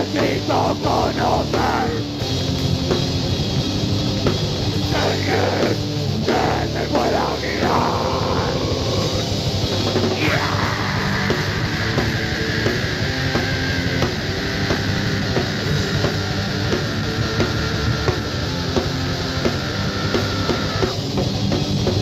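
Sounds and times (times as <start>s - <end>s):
heavy rock instrumental: 0.0s - 22.0s.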